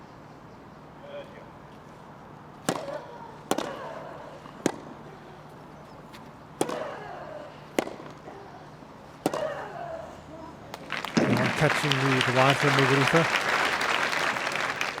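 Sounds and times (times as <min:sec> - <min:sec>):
tennis ball struck by racquet: 0:02.6 - 0:03.8, 0:04.6 - 0:04.9, 0:06.6 - 0:06.9, 0:07.8 - 0:08.2, 0:09.2 - 0:09.5.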